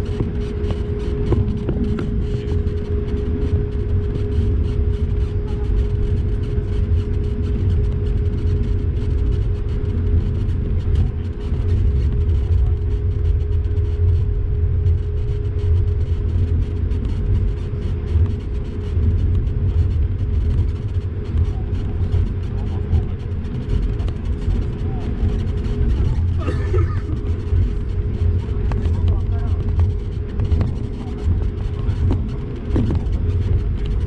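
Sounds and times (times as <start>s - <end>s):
jet engines low rumble: 0.0s - 34.0s
steady hum: 0.0s - 34.0s.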